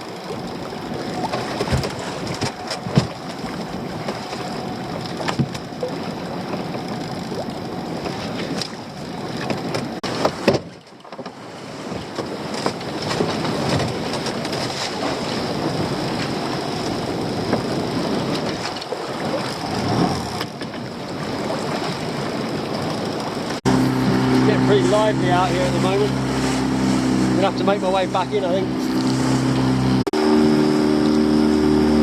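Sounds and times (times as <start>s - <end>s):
gear knocking on boat: 0.0s - 30.0s
choppy sea splashing: 0.0s - 32.0s
wind: 0.0s - 32.0s.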